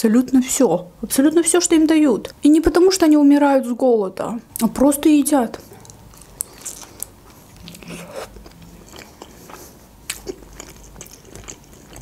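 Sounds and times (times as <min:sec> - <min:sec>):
wet chewing mouth clicks: 0:05.7 - 0:12.0.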